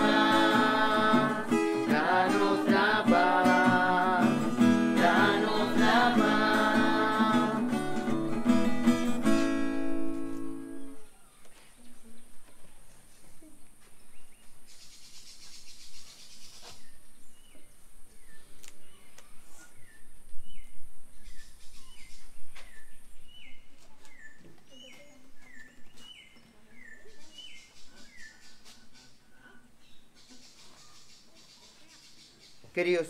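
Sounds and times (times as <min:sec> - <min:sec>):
steady outdoor hiss: 0:00.0 - 0:24.0, 0:27.1 - 0:33.0
small bird chirping: 0:14.0 - 0:32.7.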